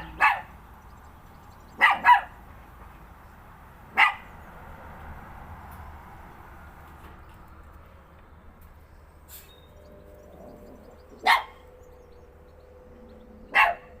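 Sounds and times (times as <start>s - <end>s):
dog barking: 0.0s - 0.6s, 1.8s - 2.4s, 3.9s - 4.3s, 11.2s - 11.7s, 13.5s - 14.0s.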